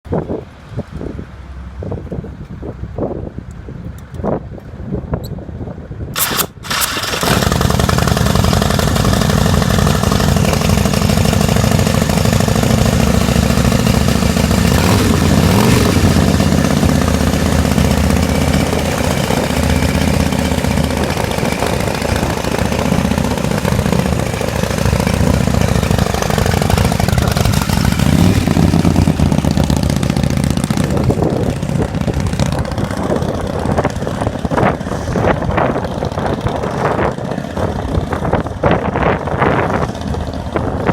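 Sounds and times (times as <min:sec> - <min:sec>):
motorcycle engine starting and idling: 0:06.2 - 0:40.9.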